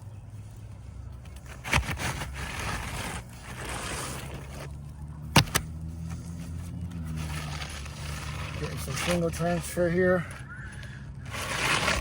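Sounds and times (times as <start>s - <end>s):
roof shingles handled and scraped: 1.3s - 4.8s, 7.0s - 12.0s.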